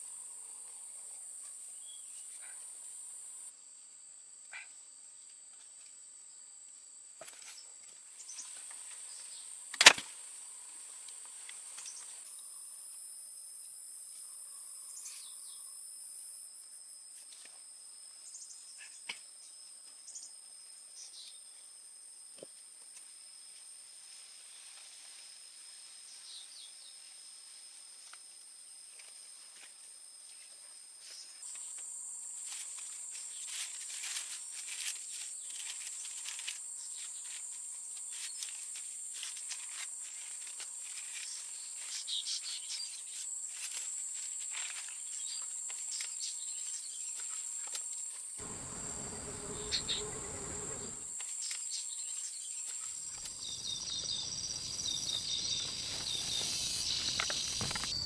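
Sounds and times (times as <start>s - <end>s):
clicks and crackles: 9.8s - 10.1s, 53.1s - 58.0s
insects trilling: 31.2s - 58.0s
rough full noise: 48.4s - 51.1s.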